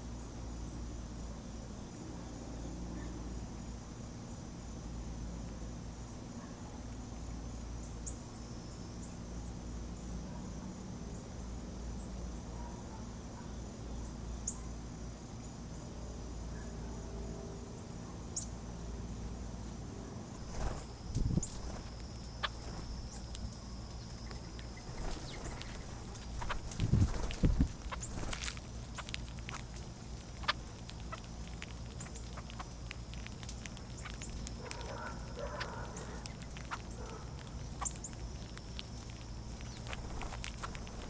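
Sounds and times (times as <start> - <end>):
crickets and insects chirping: 0.0 - 41.0
small animals rustling and scratching: 20.4 - 41.0.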